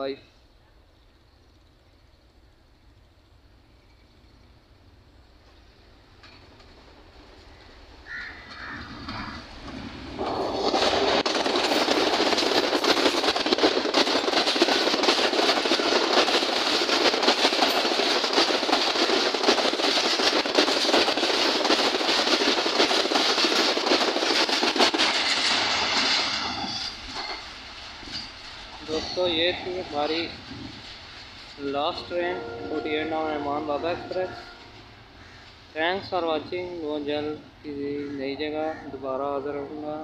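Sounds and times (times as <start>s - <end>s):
train passing at speed: 1.6s - 40.0s
wheels clicking over rail joints: 5.5s - 37.4s.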